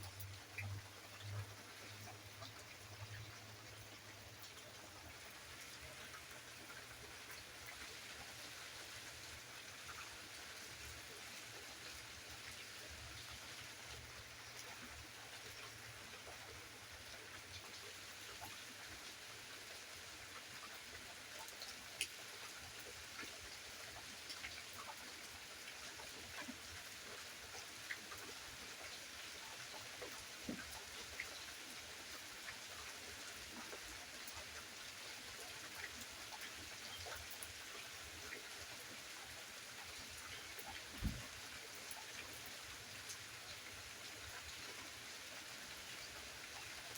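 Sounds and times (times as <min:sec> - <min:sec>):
steady rain hiss: 0:00.0 - 0:46.9
raindrop ticks: 0:39.8 - 0:43.2.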